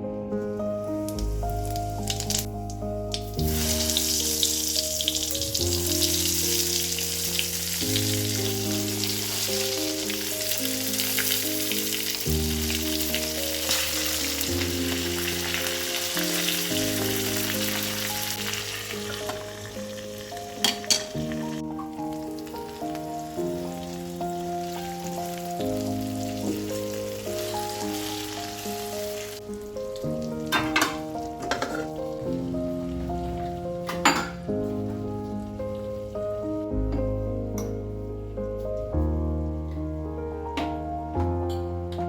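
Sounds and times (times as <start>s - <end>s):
soft background music: 0.0s - 42.0s
food sizzling in a pan: 1.2s - 33.0s.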